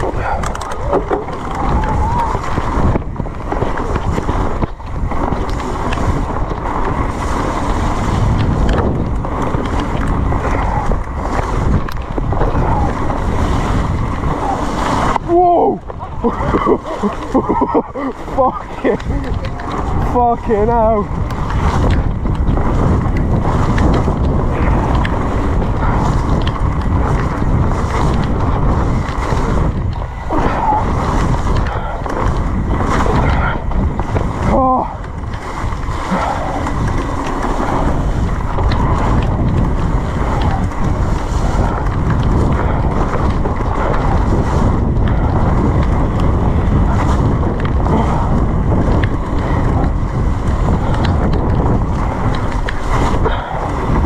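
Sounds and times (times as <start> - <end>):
heavy rain: 0.0 - 3.0, 9.6 - 54.0
wind on microphone: 0.0 - 54.0
bike tyres splashing in mud: 16.2 - 54.0.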